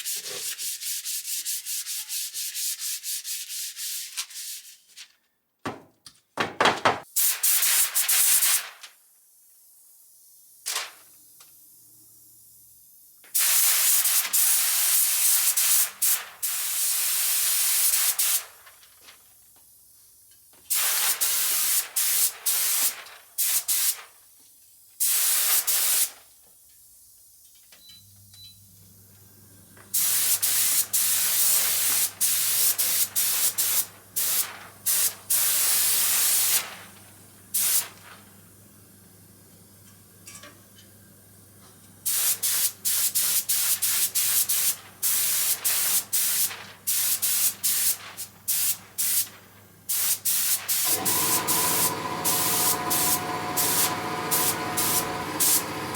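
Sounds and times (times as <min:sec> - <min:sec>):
spray nozzle hissing: 0:49.9 - 0:55.9.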